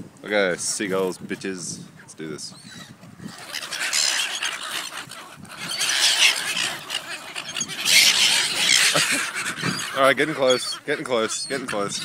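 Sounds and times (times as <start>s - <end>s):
gulls squawking: 2.4s - 12.0s.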